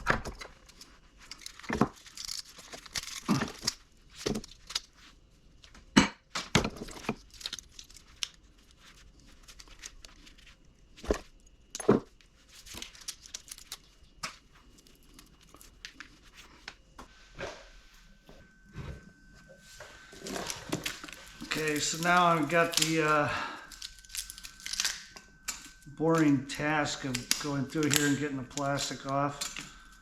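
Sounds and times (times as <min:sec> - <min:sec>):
rustling and tearing: 0:00.5 - 0:05.7, 0:06.8 - 0:16.8, 0:19.7 - 0:29.9
metal parts clinking and knocking: 0:01.3 - 0:04.8.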